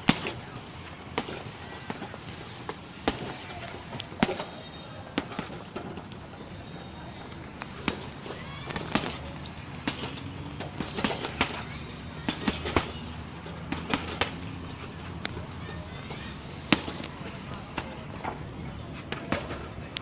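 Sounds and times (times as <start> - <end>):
strikes on heavy punching bag: 0.0 - 0.5, 13.7 - 14.4.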